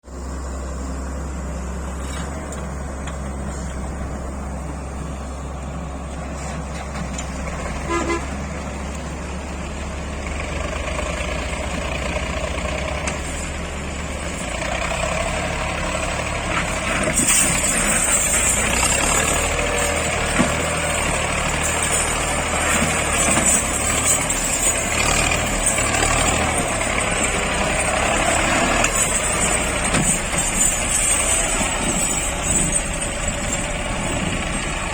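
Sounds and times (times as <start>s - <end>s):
tractor engine running: 0.0s - 34.9s.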